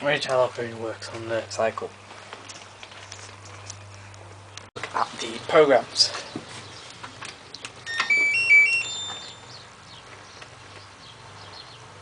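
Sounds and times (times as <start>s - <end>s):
electronic beeping melody: 7.8s - 9.5s.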